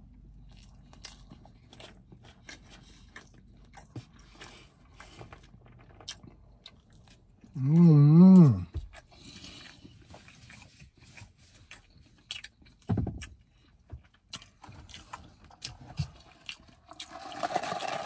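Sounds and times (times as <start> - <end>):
chewing and lip smacking: 0.0 - 7.6, 8.3 - 17.2
person humming mmm: 7.6 - 8.7.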